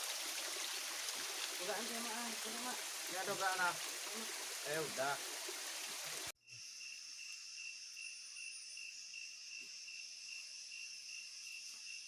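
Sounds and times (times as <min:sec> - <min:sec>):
stream water rushing: 0:00.0 - 0:06.3
insects trilling: 0:05.7 - 0:12.0.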